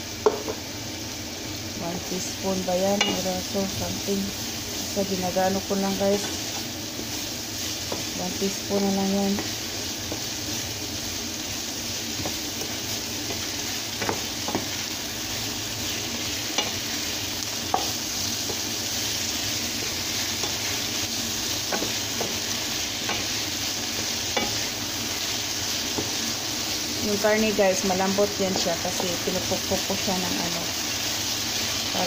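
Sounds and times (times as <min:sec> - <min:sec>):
vegetables sizzling in a pan: 0:00.0 - 0:32.0
wooden spatula knocking on pan: 0:12.2 - 0:14.7.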